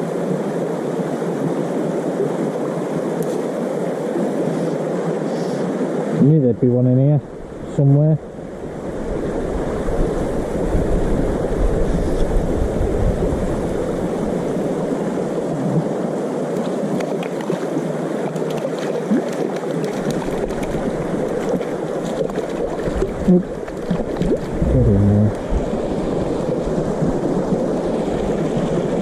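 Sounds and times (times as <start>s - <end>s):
river water babbling: 0.0s - 24.6s, 25.2s - 29.0s
wind buffeting microphone: 7.2s - 14.9s, 22.6s - 29.0s.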